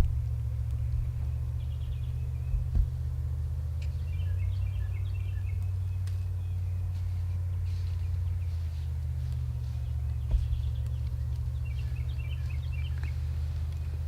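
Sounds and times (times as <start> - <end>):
songbird chirps: 0.0 - 14.0
steady low rumble: 0.0 - 14.0.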